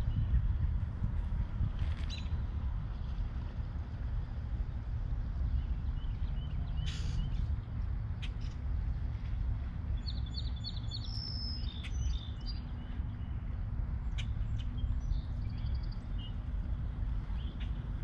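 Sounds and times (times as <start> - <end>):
steady low rumble: 0.0 - 18.0
songbirds chirping and whistling: 2.0 - 2.4, 5.5 - 8.6, 9.9 - 18.0.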